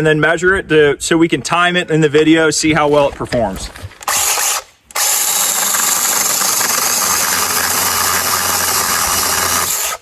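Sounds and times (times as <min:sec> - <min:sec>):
mini chainsaw cutting wood: 0:04.0 - 0:10.0.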